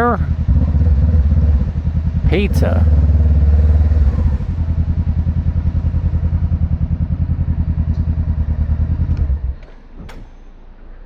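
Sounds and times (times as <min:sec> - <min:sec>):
motorcycle engine idling: 0:00.0 - 0:09.7.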